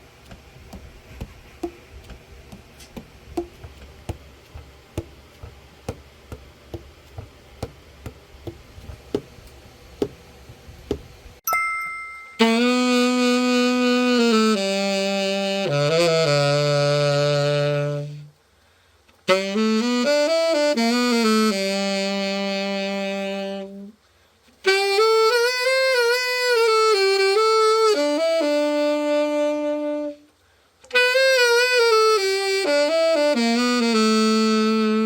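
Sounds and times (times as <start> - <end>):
tenor saxophone solo: 12.4 - 18.4, 19.2 - 24.0, 24.6 - 35.0.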